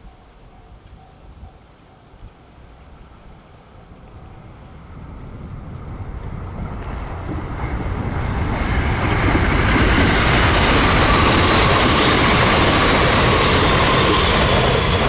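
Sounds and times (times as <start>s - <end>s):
electric train rumbling past: 0.0s - 15.0s.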